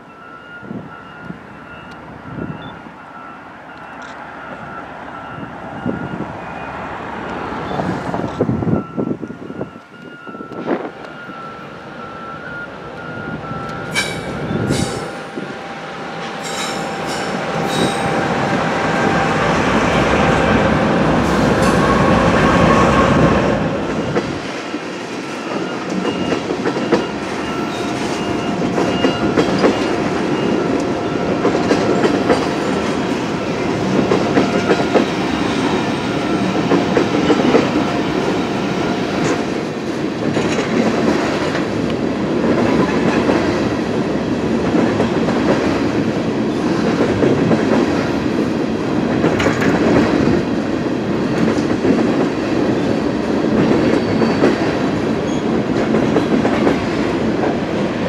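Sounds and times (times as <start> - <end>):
train wheels squealing: 0.0 - 6.8, 7.6 - 19.5, 25.3 - 39.5, 53.6 - 55.6
locomotive engines rumbling: 0.0 - 58.0.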